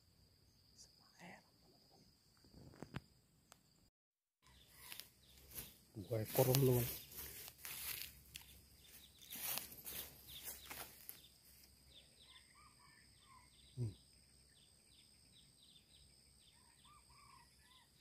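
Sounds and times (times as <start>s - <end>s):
insect drone: 0.0s - 18.0s
bird chirping: 4.4s - 18.0s
rustling: 4.8s - 11.7s.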